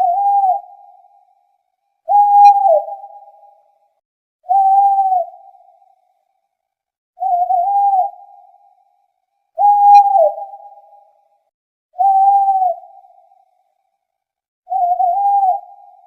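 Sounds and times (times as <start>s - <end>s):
owl hooting: 0.0s - 1.1s, 2.1s - 3.5s, 4.5s - 5.8s, 9.6s - 11.1s, 12.0s - 13.5s, 14.7s - 16.0s.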